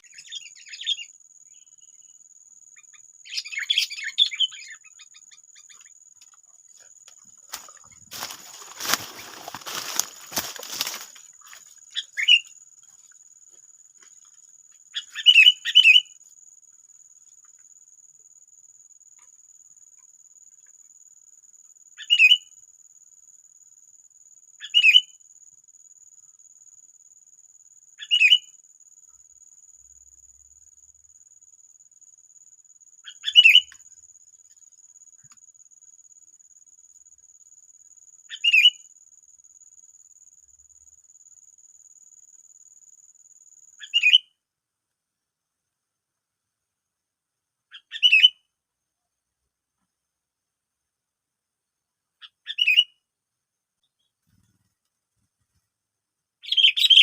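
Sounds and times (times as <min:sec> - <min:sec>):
high insect drone: 0:00.0 - 0:44.0.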